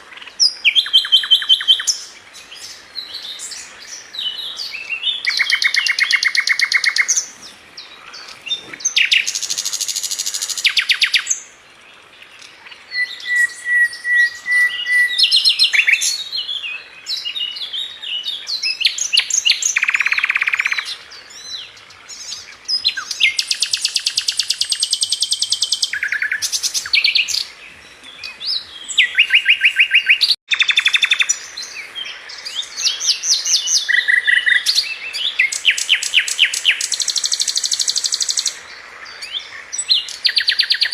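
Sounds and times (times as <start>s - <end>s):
songbird trilling and chattering: 0.1s - 11.4s, 18.4s - 21.0s, 22.1s - 40.9s
long even bird whistle: 12.9s - 16.2s.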